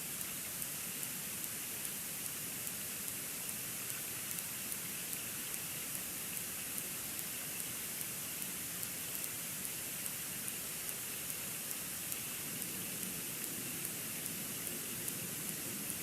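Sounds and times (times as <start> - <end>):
steady hiss: 0.0 - 16.0
light ticks of falling snow: 0.1 - 16.0.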